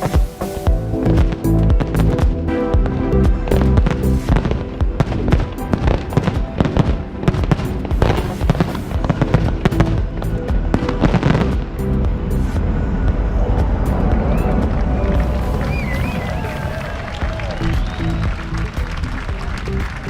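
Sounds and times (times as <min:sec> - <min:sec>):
background music: 0:00.0 - 0:20.0
fireworks bangs and crackles: 0:03.3 - 0:10.1.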